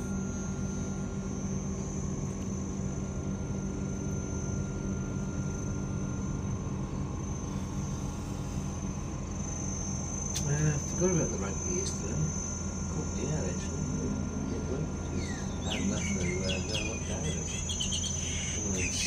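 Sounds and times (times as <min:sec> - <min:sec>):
high-pitched insect trill: 0:00.0 - 0:19.0
steady low drone: 0:00.0 - 0:19.0.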